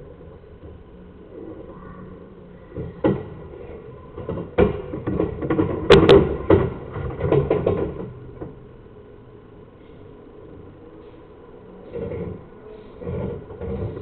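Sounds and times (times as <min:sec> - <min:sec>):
handling knocks and scrapes: 0:02.7 - 0:08.6, 0:11.9 - 0:14.0.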